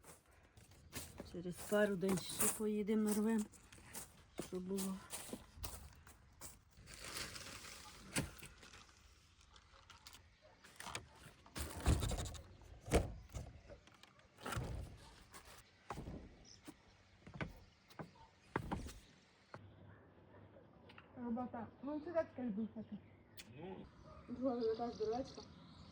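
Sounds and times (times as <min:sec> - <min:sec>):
plant stems rustling: 0:06.8 - 0:11.8
knocks and thumps: 0:15.9 - 0:16.6, 0:17.3 - 0:19.0.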